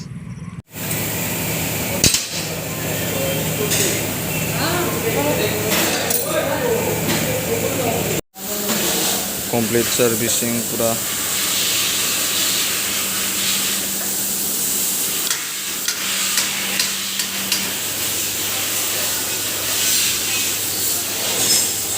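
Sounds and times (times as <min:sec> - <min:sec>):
low mechanical hum: 0:00.0 - 0:21.9
steady hissing noise: 0:08.5 - 0:21.9.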